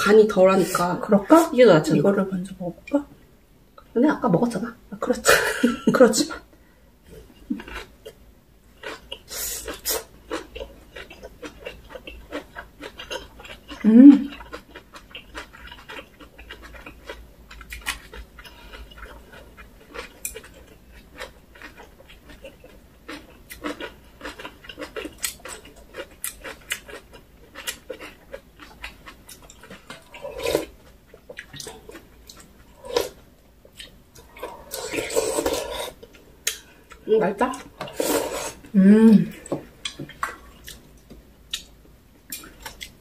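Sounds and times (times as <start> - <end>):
wet chewing and lip smacks: 39.8 - 43.0.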